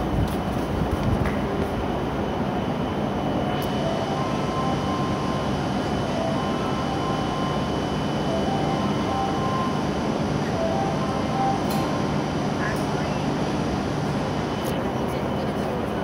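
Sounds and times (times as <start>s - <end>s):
train running hum: 0.0s - 16.0s
high-pitched warning tone: 2.2s - 15.9s
electronic chime notes: 3.8s - 12.0s.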